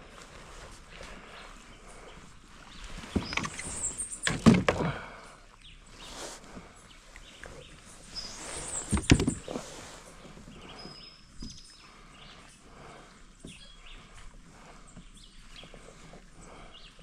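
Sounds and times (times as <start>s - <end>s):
loud knocks and rustling: 4.2s - 4.8s, 8.8s - 9.6s.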